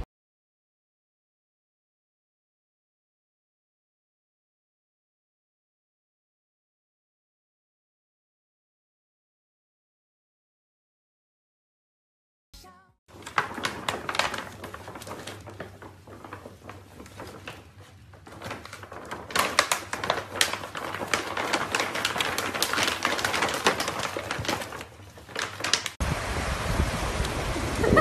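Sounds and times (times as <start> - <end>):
bag rustling and crinkling: 13.1 - 26.0.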